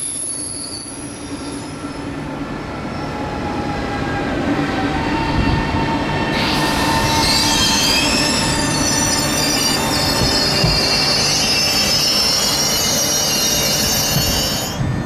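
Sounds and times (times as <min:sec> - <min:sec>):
electric train rumbling past: 0:00.0 - 0:15.0
metallic wheel squeal: 0:06.4 - 0:14.8.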